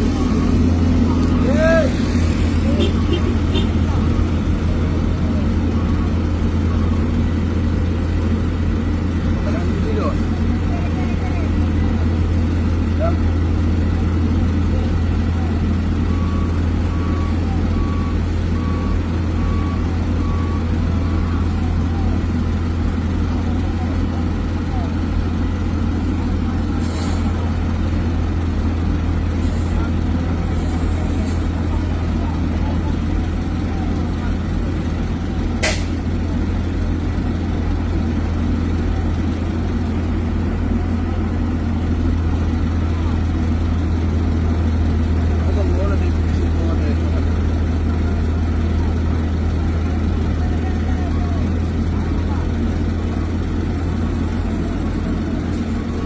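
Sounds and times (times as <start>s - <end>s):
heavy truck engine drone: 0.0s - 56.0s
truck reversing alarm beeping: 0.0s - 56.0s
faint voices: 19.3s - 56.0s.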